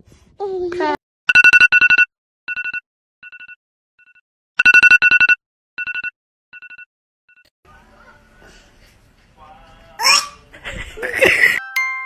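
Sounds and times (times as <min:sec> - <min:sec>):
phone alarm beeping: 0:01.3 - 0:06.9.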